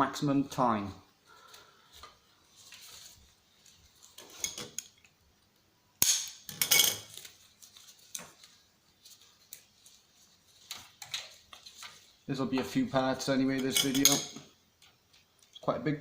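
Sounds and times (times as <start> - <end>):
tools and parts clattering: 4.1 - 5.0, 6.0 - 7.3, 13.6 - 14.5.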